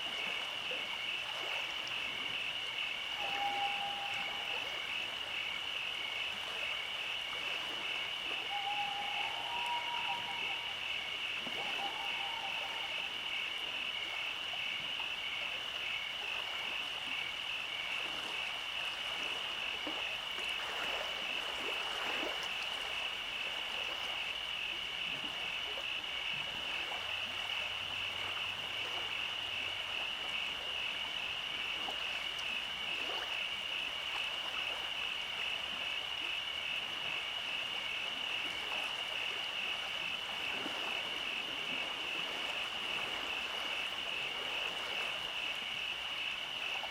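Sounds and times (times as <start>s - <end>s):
animals calling with pulsing trill: 3.1s - 5.0s, 8.3s - 13.6s.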